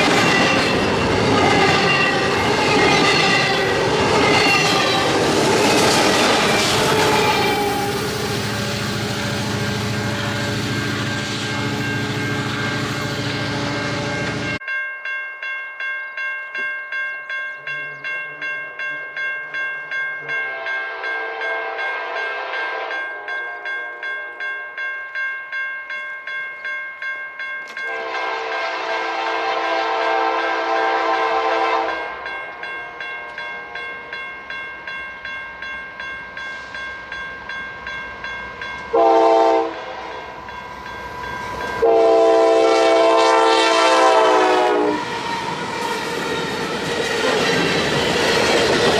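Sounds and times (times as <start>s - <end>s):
crossing bell ringing: 0.0s - 48.9s
locomotive air horn blasts: 6.4s - 9.4s, 20.5s - 23.0s, 27.9s - 32.2s, 38.9s - 40.4s, 41.8s - 45.1s.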